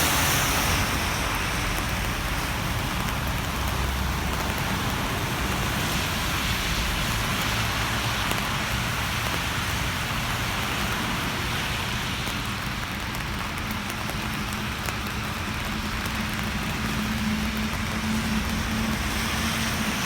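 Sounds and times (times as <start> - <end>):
rain hiss: 0.0 - 20.0
vehicle engine hum: 0.0 - 20.0.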